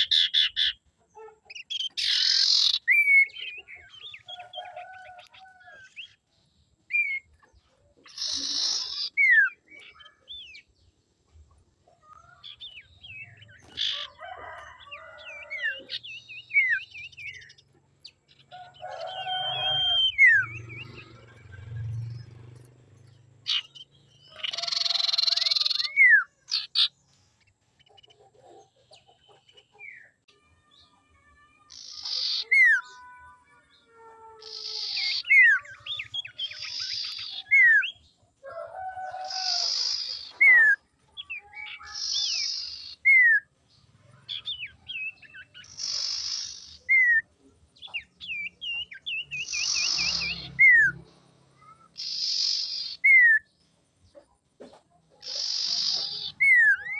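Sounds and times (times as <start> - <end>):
bird calling with whistles: 1.5 - 5.0, 19.0 - 21.2, 34.4 - 38.0, 51.6 - 53.5
harsh rasping bird call: 8.1 - 10.6, 18.5 - 21.8, 23.4 - 26.9, 30.7 - 43.4.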